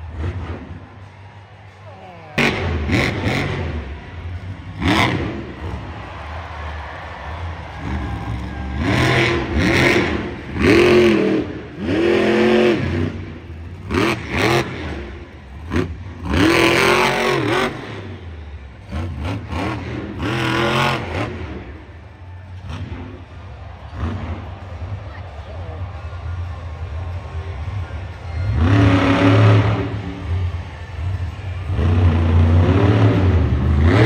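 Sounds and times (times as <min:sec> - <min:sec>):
monster truck engine revving: 0:00.0 - 0:34.0
low engine rumble: 0:21.0 - 0:34.0.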